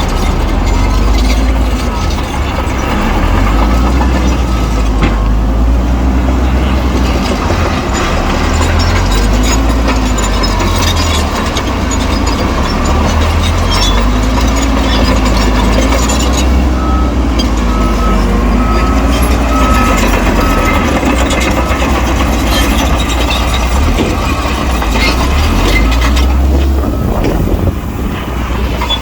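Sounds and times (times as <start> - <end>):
bulldozer engine rumbling: 0.0 - 29.0
tracks clattering: 0.0 - 29.0.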